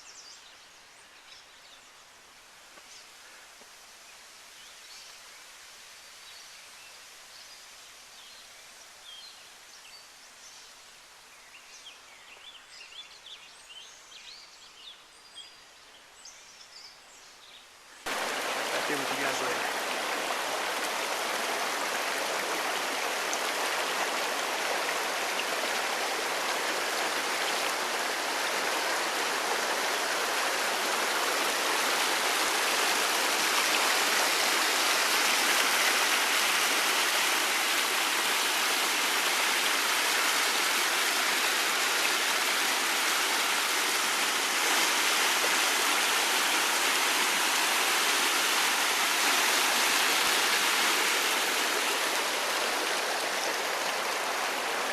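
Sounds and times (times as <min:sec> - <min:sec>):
rushing water: 0:18.1 - 0:54.9.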